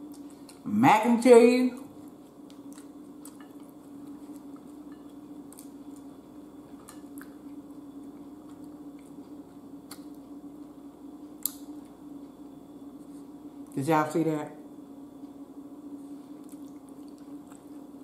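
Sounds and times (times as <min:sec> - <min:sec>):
steady low hum: 0:00.0 - 0:18.0
chewing steak: 0:02.0 - 0:10.8, 0:16.3 - 0:18.0.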